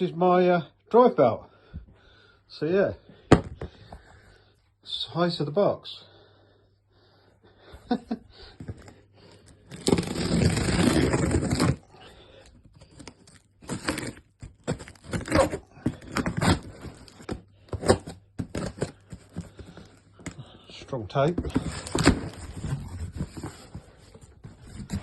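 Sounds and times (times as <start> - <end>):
packing tape ripping: 9.6 - 11.9, 12.8 - 19.0
cardboard scraping and rustling: 9.7 - 11.8, 12.8 - 20.4, 21.1 - 25.0.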